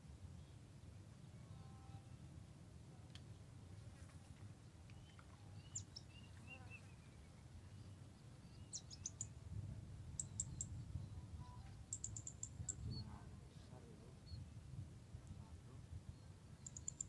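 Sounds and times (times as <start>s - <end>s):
small bird chirping: 5.0s - 9.4s, 10.1s - 13.2s, 16.6s - 17.0s.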